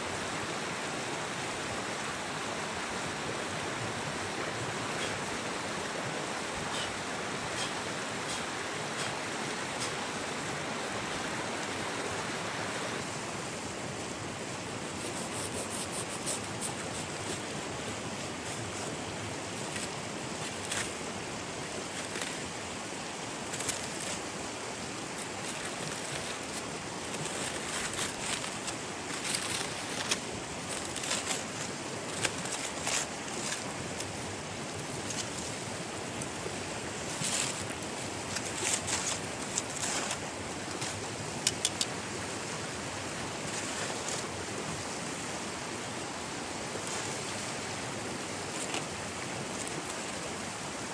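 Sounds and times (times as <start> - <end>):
water rushing: 0.0 - 50.9
sharp crackles and pops: 18.2 - 41.9.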